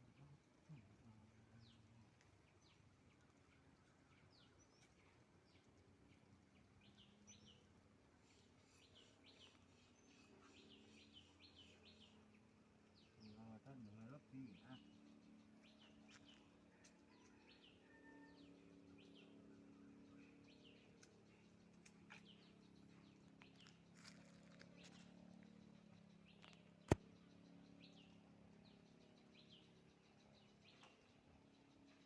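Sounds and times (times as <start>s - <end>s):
low steady hum: 0.0s - 32.0s
faint small bird chirps: 8.2s - 12.2s.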